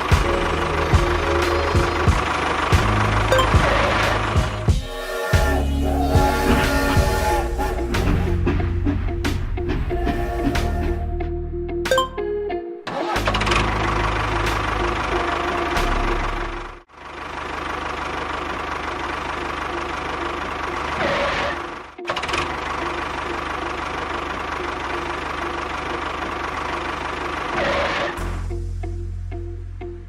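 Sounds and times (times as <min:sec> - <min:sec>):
small engine knocking: 0:00.0 - 0:04.7, 0:17.0 - 0:28.0.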